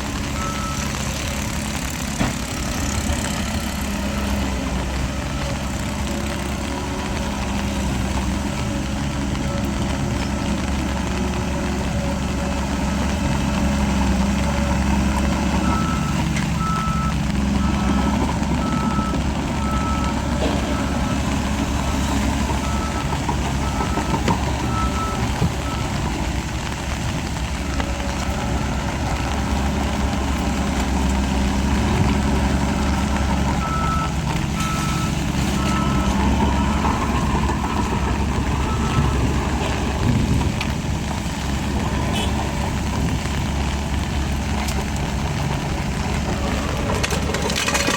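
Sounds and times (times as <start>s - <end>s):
heavy diesel engine running: 0.0s - 47.9s
reversing alarm beeping: 15.6s - 25.9s, 33.6s - 37.0s.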